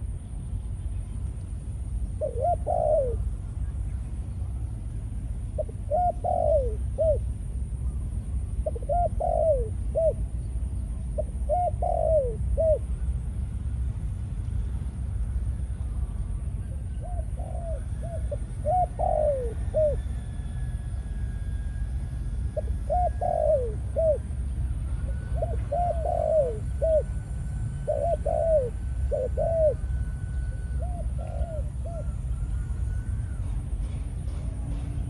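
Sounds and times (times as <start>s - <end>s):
low background rumble: 0.0s - 35.0s
dove cooing: 2.1s - 3.8s, 5.4s - 7.3s, 8.6s - 10.3s, 11.0s - 13.1s, 16.6s - 20.5s, 22.5s - 34.0s.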